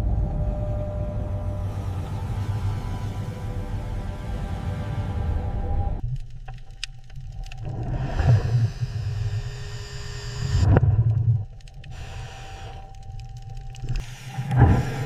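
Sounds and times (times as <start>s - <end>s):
low machinery rumble: 0.0s - 6.4s
faint steady whine: 0.0s - 15.0s.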